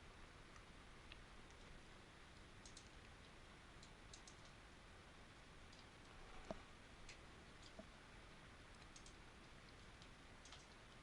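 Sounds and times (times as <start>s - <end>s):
computer mouse clicks: 2.6s - 3.2s, 3.8s - 4.6s, 8.8s - 10.9s.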